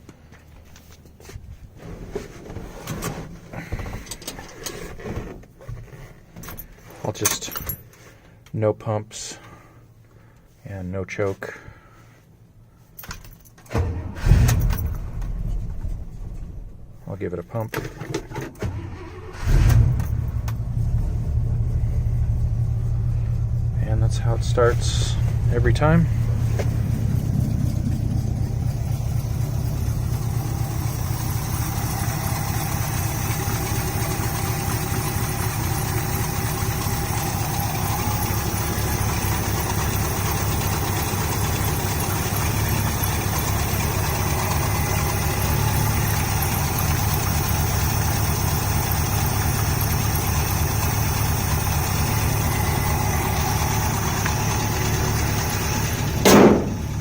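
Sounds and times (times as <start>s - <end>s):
pickup engine idling: 18.7s - 57.0s.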